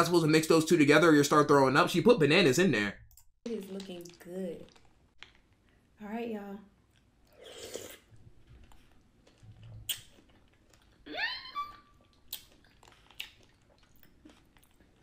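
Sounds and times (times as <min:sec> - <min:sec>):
person chewing: 0:06.9 - 0:11.1, 0:11.7 - 0:15.0.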